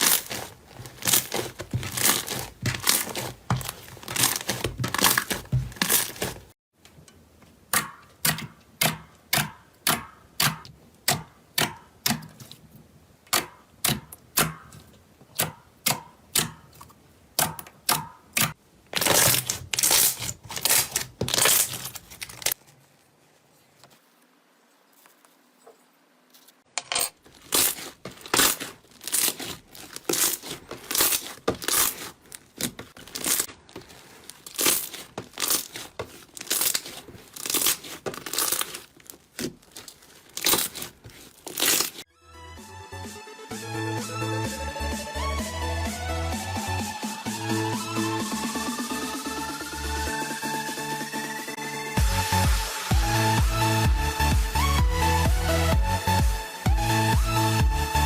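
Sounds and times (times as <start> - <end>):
slime squishing and popping: 0.0 - 6.4, 27.4 - 42.1.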